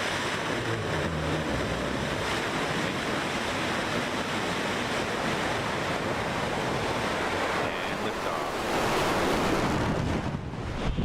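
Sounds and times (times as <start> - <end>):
rocket engine roaring: 0.0 - 8.4.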